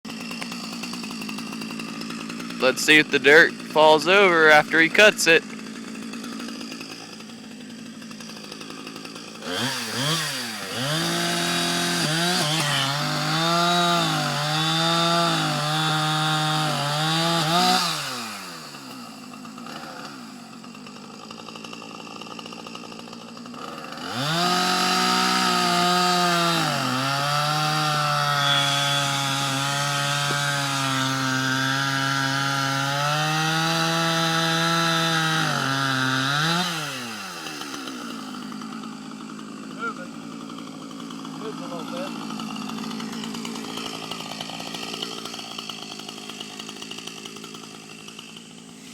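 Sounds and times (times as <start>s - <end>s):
chainsaw cutting tree trunk: 0.0s - 48.9s.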